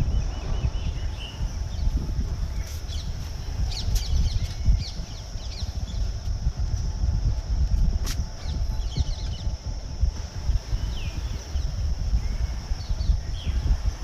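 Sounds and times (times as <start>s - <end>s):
birds chirping: 0.0s - 6.9s, 8.2s - 14.0s
rough low rumble: 0.0s - 14.0s.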